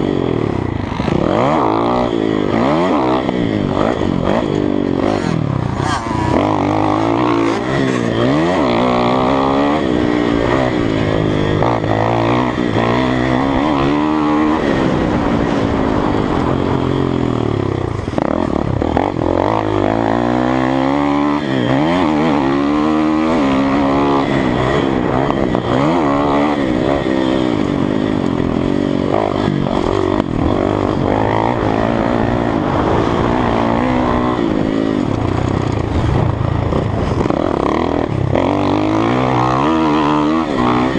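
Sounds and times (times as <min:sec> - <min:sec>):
motocross bike engine revving: 0:00.0 - 0:40.9.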